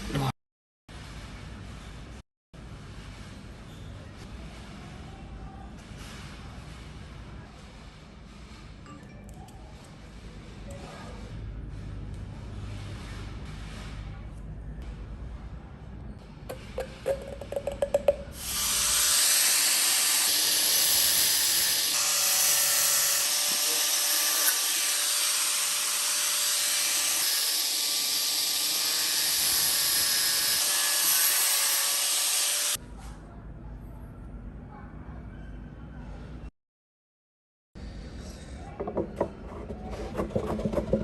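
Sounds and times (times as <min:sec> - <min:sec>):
power tool running steadily: 0:18.4 - 0:32.8.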